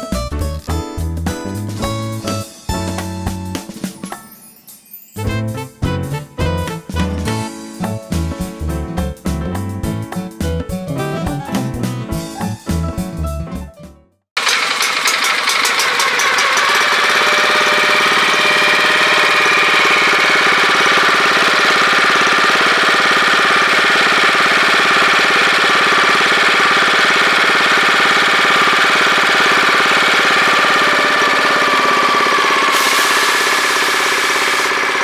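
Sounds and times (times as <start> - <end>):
gasoline engine running steadily: 14.4 - 35.0.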